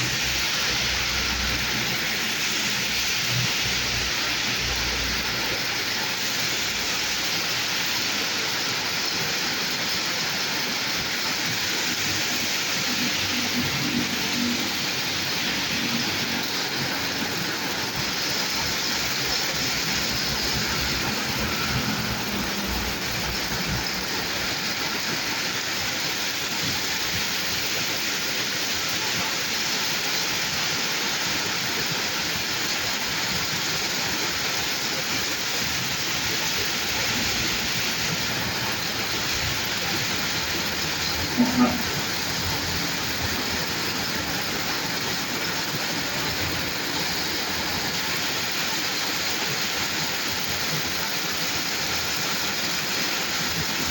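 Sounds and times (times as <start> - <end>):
rain falling on a road: 0.0 - 53.9.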